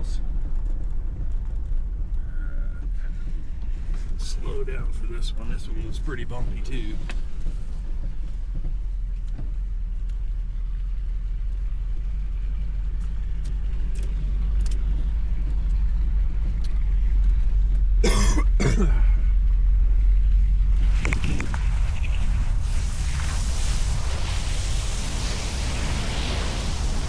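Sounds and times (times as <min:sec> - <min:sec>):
van engine and road rumble: 0:00.0 - 0:27.0
person coughing: 0:18.0 - 0:19.2.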